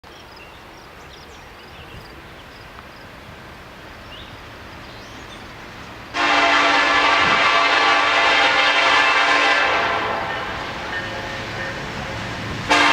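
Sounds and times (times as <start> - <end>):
outdoor hush: 0.0 - 12.9
locomotive air horn blast: 6.1 - 12.9.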